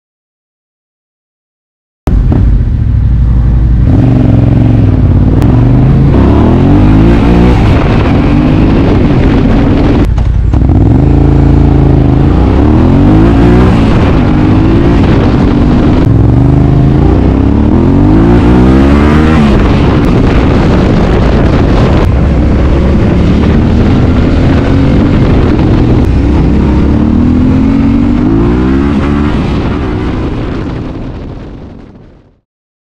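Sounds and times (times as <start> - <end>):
motorcycle engine revving hard: 3.3 - 31.7.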